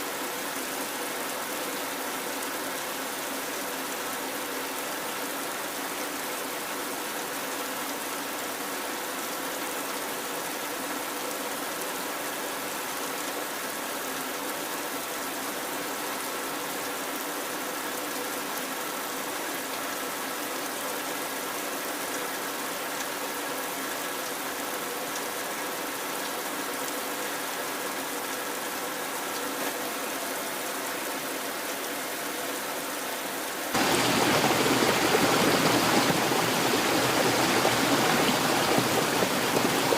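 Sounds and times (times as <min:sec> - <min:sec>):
rushing water: 0:00.0 - 0:39.9
heavy rain falling: 0:32.9 - 0:39.9.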